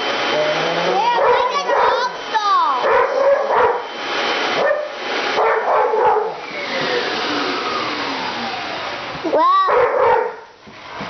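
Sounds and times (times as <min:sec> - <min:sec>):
vacuum cleaner running: 0:00.0 - 0:11.0
dog barking: 0:01.1 - 0:02.2, 0:02.8 - 0:03.8, 0:04.6 - 0:06.4, 0:09.6 - 0:10.5
falling whine: 0:03.7 - 0:09.4.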